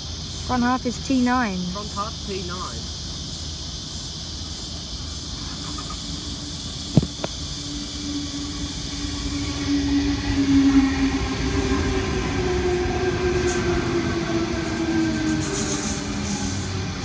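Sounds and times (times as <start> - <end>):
train rumble: 0.0 - 17.0
electric train motor whine: 4.3 - 17.0.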